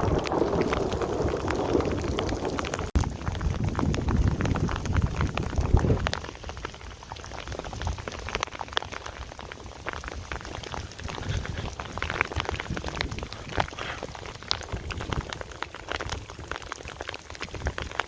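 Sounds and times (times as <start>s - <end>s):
hailstones ticking on a surface: 0.0s - 18.0s
heavy rain: 0.0s - 18.0s
wind buffeting microphone: 0.0s - 18.0s.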